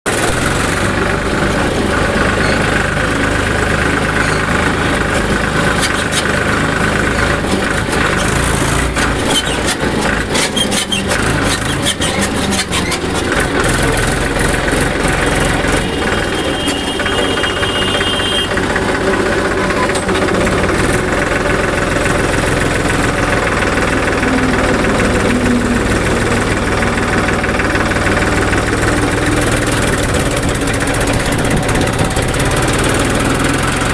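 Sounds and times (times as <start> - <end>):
tractor diesel engine running: 0.1 - 33.9
rapid clicking rattles: 18.4 - 33.9.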